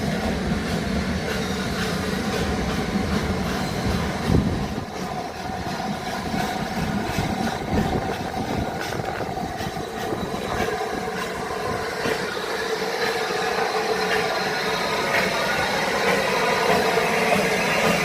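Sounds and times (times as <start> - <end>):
locomotive engine running: 0.0 - 18.0
train passing: 0.0 - 18.0.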